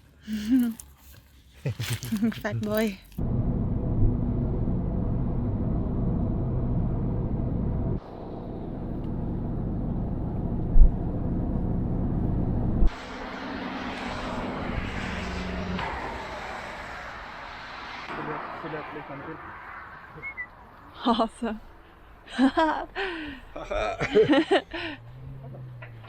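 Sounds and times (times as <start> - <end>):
vehicle engine and road noise: 0.0 - 26.0
hiss and rushing noise: 12.9 - 20.1.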